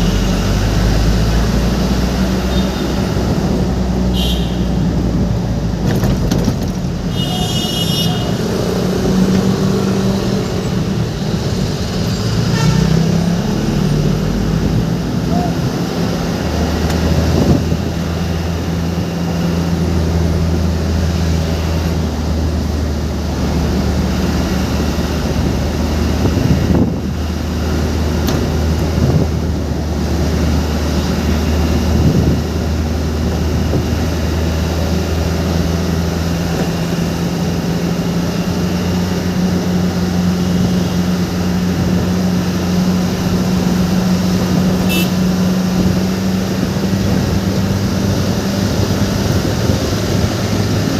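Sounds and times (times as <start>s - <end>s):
road noise: 0.0s - 50.9s
vehicle engine drone: 0.0s - 50.9s.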